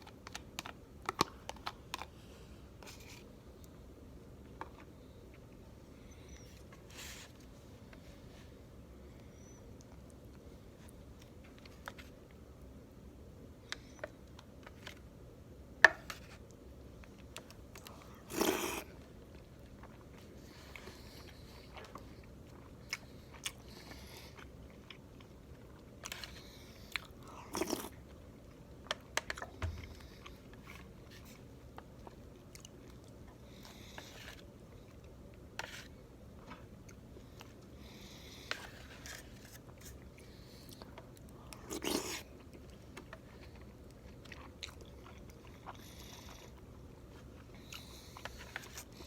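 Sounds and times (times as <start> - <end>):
person chewing food: 17.0 - 28.2, 28.8 - 49.0.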